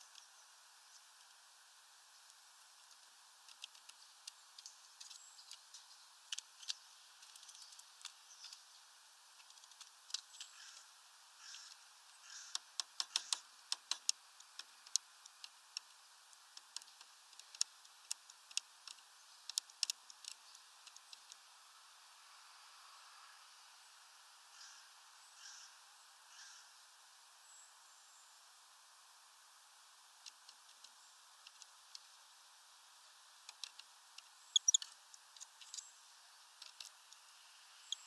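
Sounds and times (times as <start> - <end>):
bird tapping on feeder: 11.4 - 14.7.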